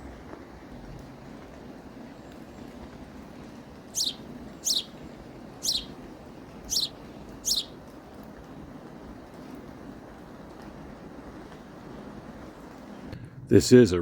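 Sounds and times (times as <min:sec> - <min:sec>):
low background noise: 0:00.0 - 0:14.0
bird chirping: 0:03.9 - 0:07.8.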